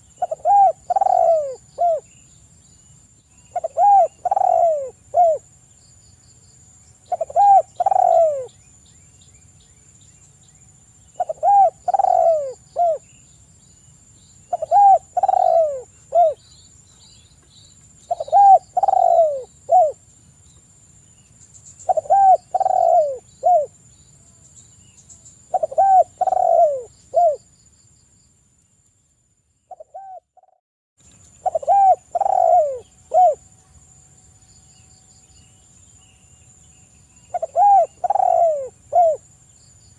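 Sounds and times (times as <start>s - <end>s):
dove cooing: 0.0s - 2.1s, 3.5s - 5.4s, 7.1s - 8.5s, 11.2s - 13.0s, 14.5s - 16.4s, 18.1s - 20.0s, 21.8s - 23.7s, 25.5s - 27.4s, 29.7s - 30.6s, 31.4s - 33.4s, 37.3s - 39.2s.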